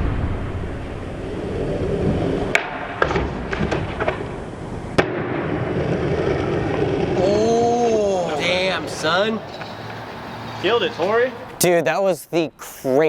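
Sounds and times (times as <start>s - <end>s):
skateboard wheels rolling on concrete: 0.0s - 11.7s
skateboard clacking: 2.4s - 7.2s, 7.8s - 11.6s.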